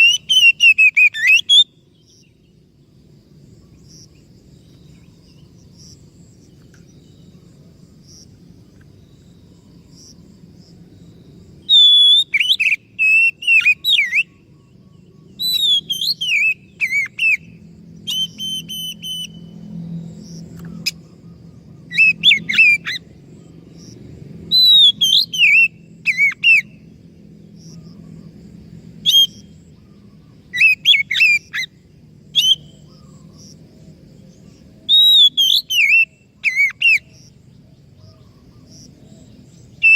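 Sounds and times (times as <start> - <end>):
bird singing whistled phrases: 0.0 - 2.3, 11.6 - 14.5, 15.2 - 19.6, 21.9 - 23.1, 24.5 - 26.8, 29.0 - 29.5, 30.5 - 31.7, 32.4 - 33.2, 34.9 - 37.1.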